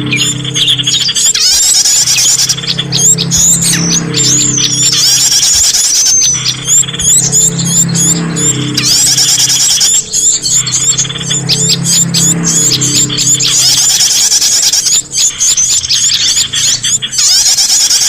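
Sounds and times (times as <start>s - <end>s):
low musical backing: 0.0s - 14.0s
rapid ticking trill: 0.0s - 18.0s
songbirds chirping: 0.0s - 18.0s
sweeping whistles: 0.0s - 18.0s.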